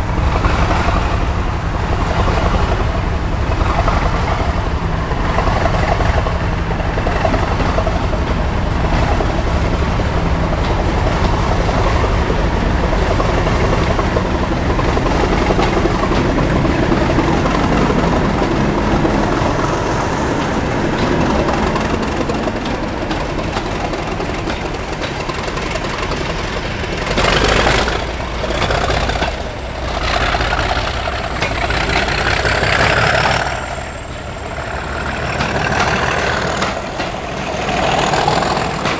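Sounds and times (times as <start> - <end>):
diesel locomotive engine drone: 0.0 - 38.9.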